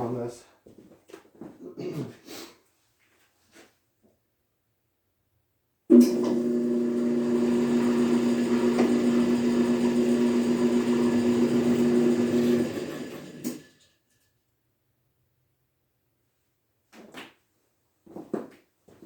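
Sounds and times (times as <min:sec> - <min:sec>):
small motor humming: 0:06.0 - 0:13.7.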